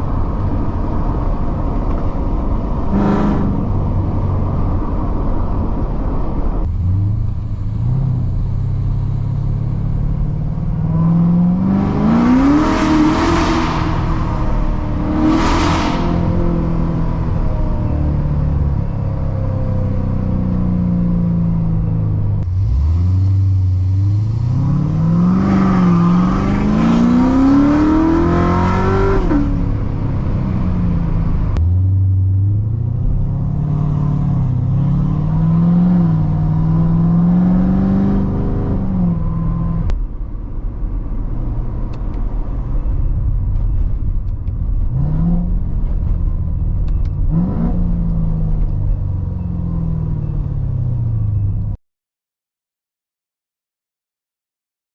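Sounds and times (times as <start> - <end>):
car engine accelerating hard: 6.6 - 20.3, 22.4 - 40.0, 41.6 - 51.5.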